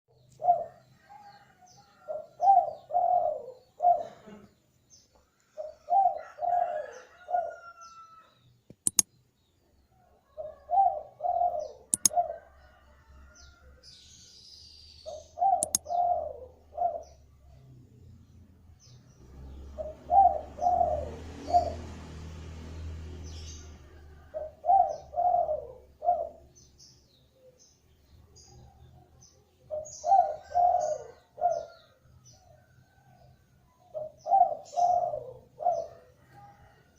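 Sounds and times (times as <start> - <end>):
small birds chirping: 0.1 - 21.9, 22.7 - 36.9
dove cooing: 0.2 - 4.6, 5.5 - 7.8, 10.2 - 12.8, 15.0 - 17.6, 19.7 - 21.9, 24.1 - 26.6, 29.7 - 33.0, 33.9 - 36.8
sharp clicks: 8.7 - 9.1, 11.9 - 12.2, 15.6 - 15.8.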